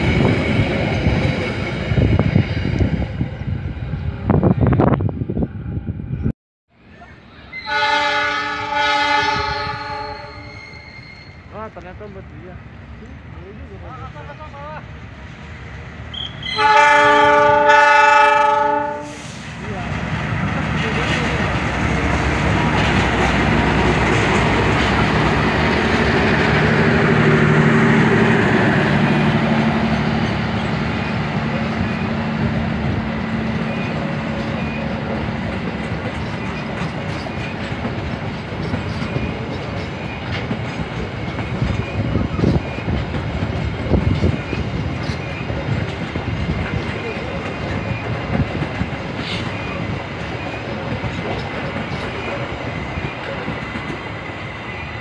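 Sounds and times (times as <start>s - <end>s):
passenger coaches rumbling past: 0.0s - 55.0s
diesel locomotive engine running: 18.4s - 55.0s
wheels clacking over rail joints: 32.8s - 54.5s.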